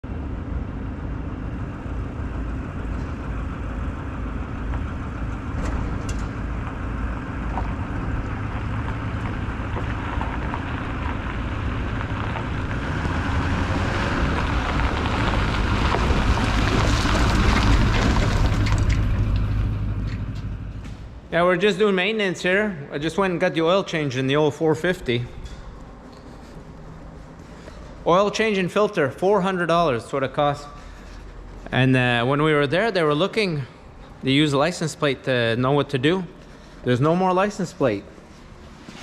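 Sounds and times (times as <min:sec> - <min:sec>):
truck engine running: 0:00.0 - 0:21.3.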